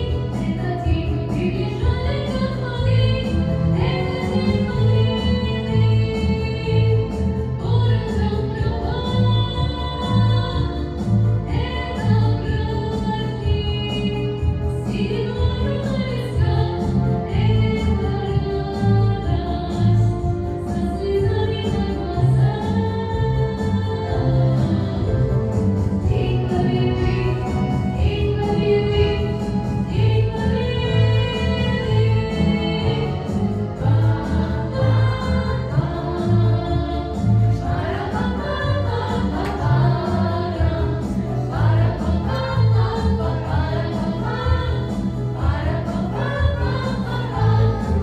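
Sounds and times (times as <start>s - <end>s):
instrumental backing with bass beat: 0.0s - 48.0s
choir singing: 23.6s - 48.0s.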